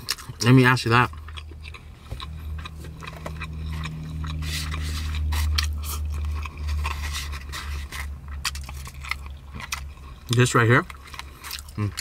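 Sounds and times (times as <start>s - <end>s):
person chewing and biting food: 0.0s - 12.0s
low hum: 1.1s - 10.3s.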